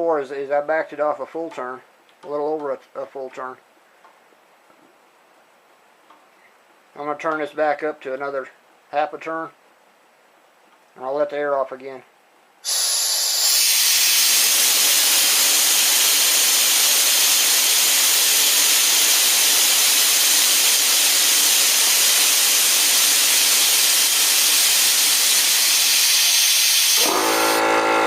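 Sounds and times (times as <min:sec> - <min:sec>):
compressed air hissing: 0:12.6 - 0:27.7.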